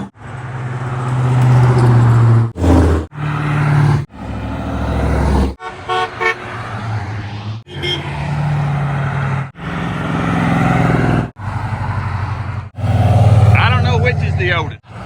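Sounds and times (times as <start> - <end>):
car engines driving past: 0.0 - 15.0
car horn toots: 5.6 - 6.7, 7.7 - 8.2.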